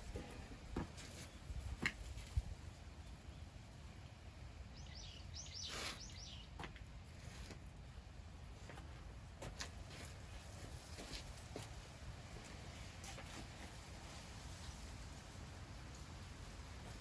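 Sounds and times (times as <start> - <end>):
small bird chirping: 4.7 - 6.6.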